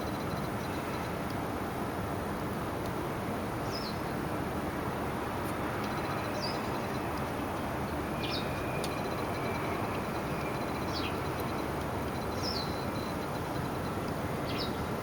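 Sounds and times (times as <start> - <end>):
background rush of noise: 0.0 - 15.0
small bird chirping: 8.2 - 13.6.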